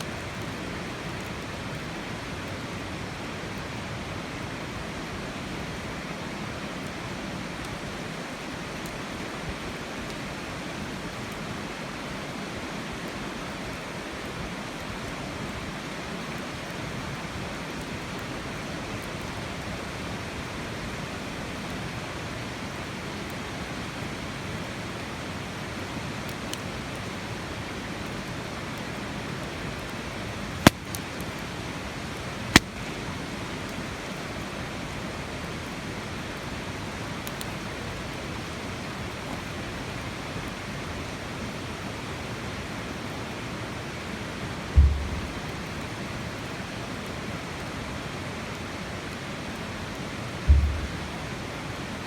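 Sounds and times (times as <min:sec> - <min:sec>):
campfire pops: 0:30.5 - 0:33.0, 0:44.7 - 0:45.8, 0:50.5 - 0:51.4.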